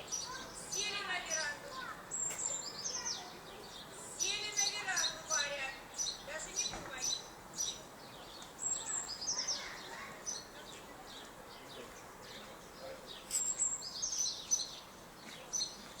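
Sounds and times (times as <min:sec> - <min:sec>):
small birds chirping: 0:00.0 - 0:16.0
steady background noise: 0:00.0 - 0:16.0.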